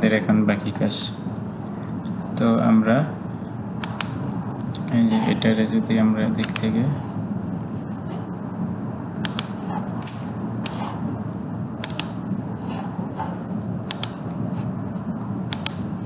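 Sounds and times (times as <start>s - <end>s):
low background hum: 0.0s - 16.0s
computer mouse clicks: 3.8s - 4.8s, 6.4s - 6.7s, 9.2s - 10.8s, 11.8s - 12.2s, 13.9s - 14.4s, 15.5s - 15.8s.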